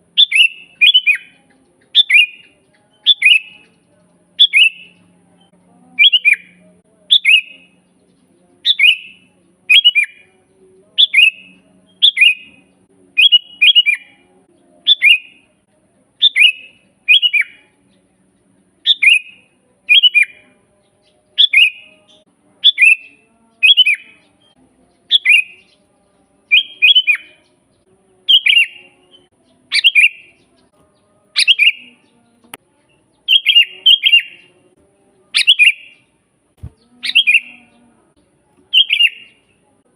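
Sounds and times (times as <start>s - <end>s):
bird calling: 29.7s - 30.3s, 31.4s - 31.9s, 33.3s - 34.4s, 35.4s - 36.0s, 37.0s - 37.6s.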